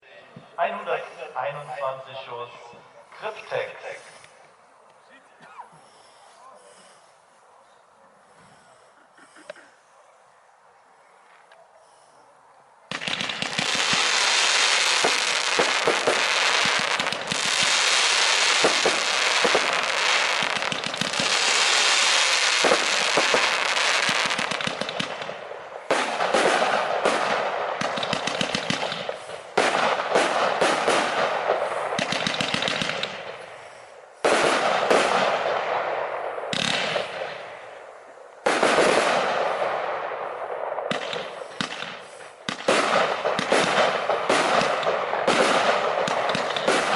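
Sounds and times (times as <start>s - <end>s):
fireworks battery firing: 12.9s - 46.9s.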